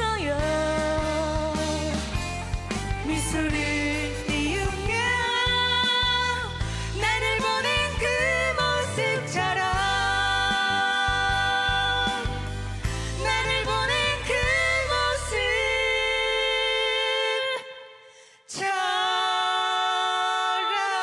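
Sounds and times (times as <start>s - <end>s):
band backing music: 0.0s - 16.8s
woman singing ballad: 0.0s - 21.0s.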